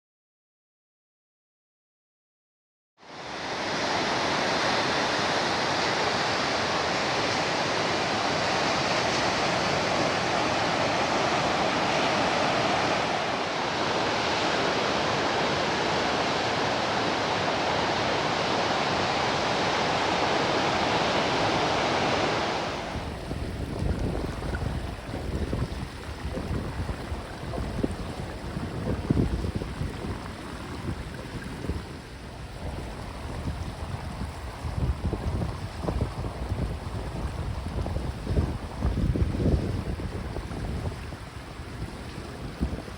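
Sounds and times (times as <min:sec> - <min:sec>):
waves breaking: 0:03.1 - 0:42.9
wind buffeting microphone: 0:21.4 - 0:42.9.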